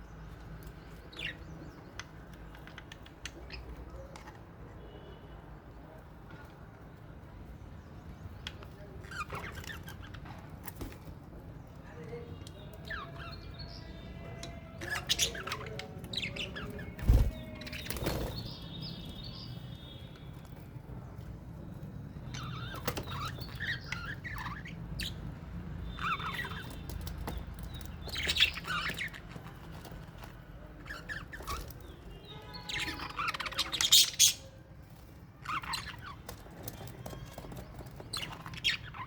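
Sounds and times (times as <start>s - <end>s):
budgies chirping and chattering: 0.3s - 4.4s, 8.2s - 11.1s, 12.5s - 19.9s, 22.2s - 39.0s.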